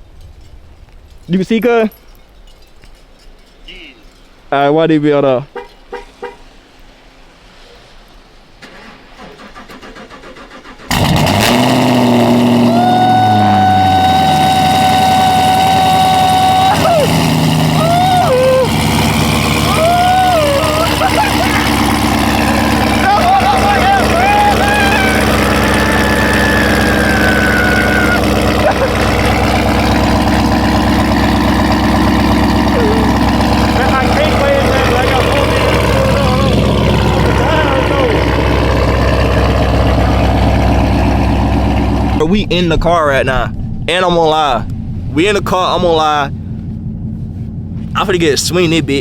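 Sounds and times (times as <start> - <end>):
engine starter cranking: 8.6 - 12.6
car engine revving and idling: 9.8 - 49.0
steady high whine: 13.2 - 49.0.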